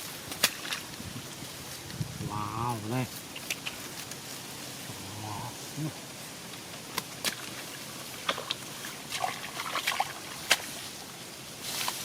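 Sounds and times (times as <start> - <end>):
shallow water splashing: 7.2 - 11.0.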